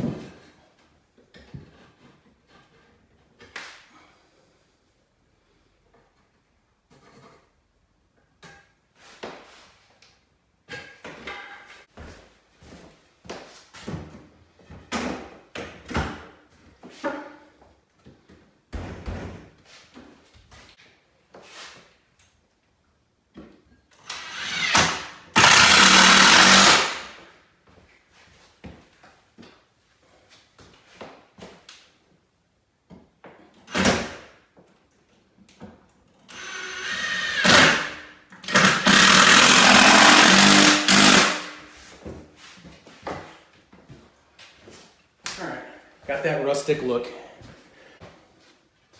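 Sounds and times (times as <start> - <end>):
knocks and thuds from hand work: 18.7 - 19.6
handheld power tool running: 24.1 - 27.2, 36.3 - 41.7.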